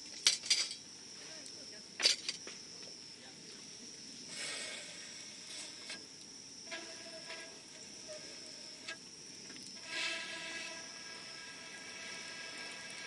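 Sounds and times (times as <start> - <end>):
fire hiss: 3.6 - 13.0.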